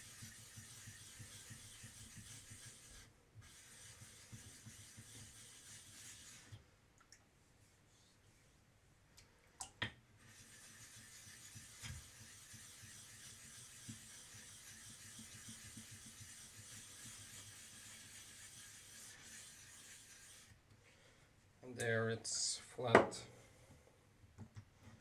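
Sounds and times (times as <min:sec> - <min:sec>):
stone scraping on whetstone: 0:00.0 - 0:06.4, 0:10.2 - 0:20.5.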